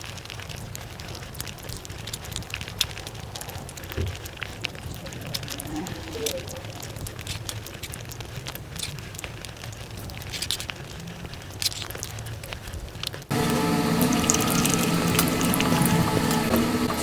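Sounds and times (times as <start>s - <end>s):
squishy chewing: 0.0s - 17.0s
wet mouth clicks: 4.6s - 10.7s
held steady tones: 13.3s - 17.0s.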